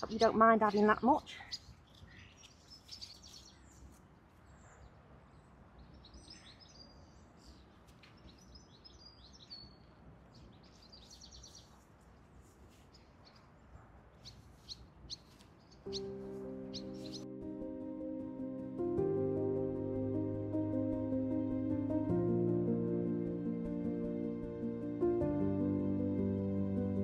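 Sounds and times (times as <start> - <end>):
small birds chirping: 0.0 - 17.3
gentle background music: 15.8 - 27.0.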